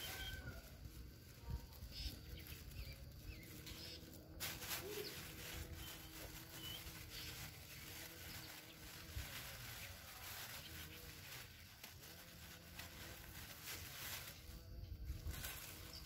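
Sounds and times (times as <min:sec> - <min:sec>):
faint bird chirps: 0:00.0 - 0:08.8.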